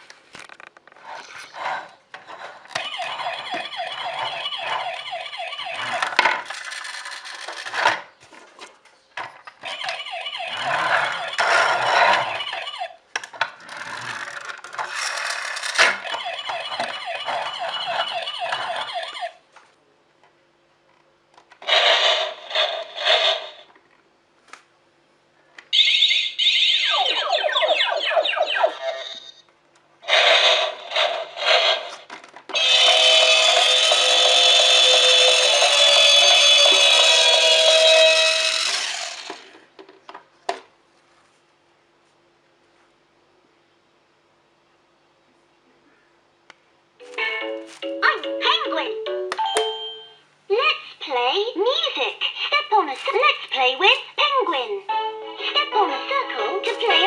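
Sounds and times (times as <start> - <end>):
electronic toy sounds and jingles: 2.8 - 6.0, 32.6 - 39.3.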